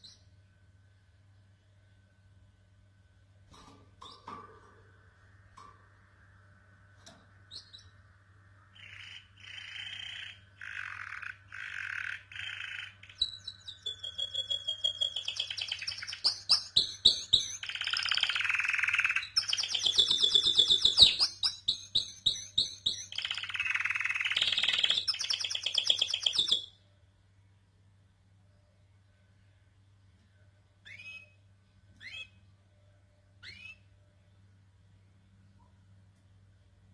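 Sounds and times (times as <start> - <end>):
canary singing trills: 7.5 - 8.0, 8.7 - 26.8, 30.8 - 32.5, 33.4 - 34.0.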